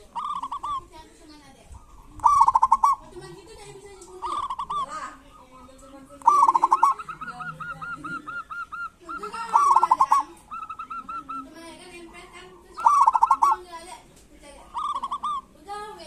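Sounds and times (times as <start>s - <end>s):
doves calling: 0.0s - 16.0s.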